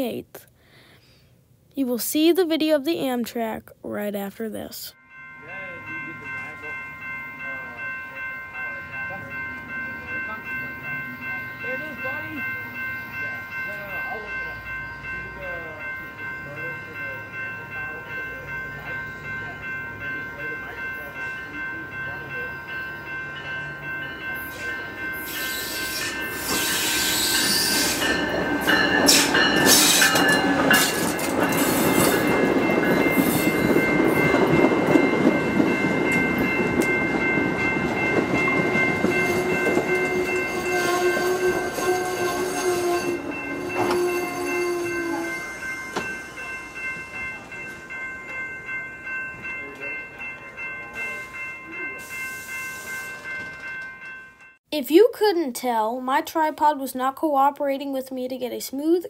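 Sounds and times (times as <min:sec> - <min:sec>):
steady high ringing tones: 0:04.5 - 0:54.6
passenger train rumbling and clattering: 0:13.6 - 0:52.1.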